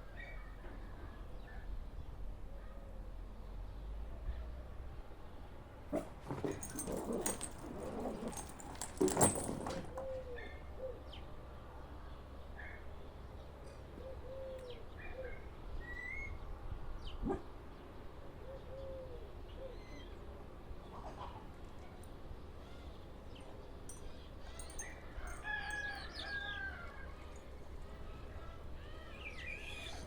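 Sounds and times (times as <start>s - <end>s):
rustling and clicks: 6.0s - 10.2s.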